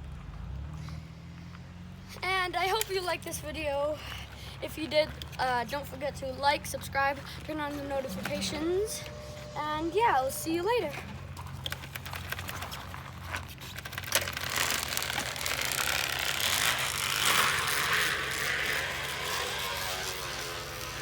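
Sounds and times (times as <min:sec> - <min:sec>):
plastic bottle flapping against spokes: 0:11.4 - 0:17.8.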